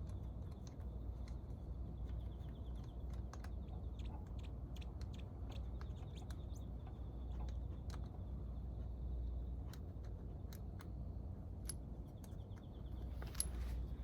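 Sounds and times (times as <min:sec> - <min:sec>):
steady low rumble: 0:00.0 - 0:14.0
metal engine parts handled: 0:13.1 - 0:14.0.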